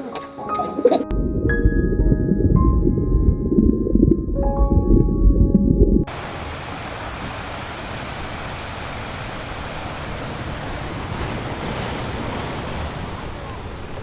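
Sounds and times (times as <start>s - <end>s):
music with deep rumble: 1.1s - 6.1s.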